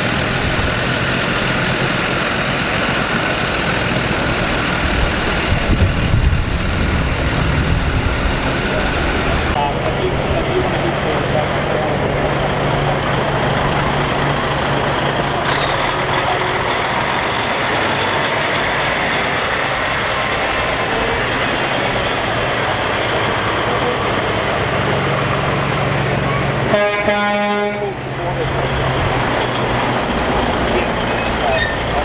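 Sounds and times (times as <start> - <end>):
heavy trucks passing: 0.0 - 32.0
truck horn: 11.4 - 18.0, 26.2 - 28.1.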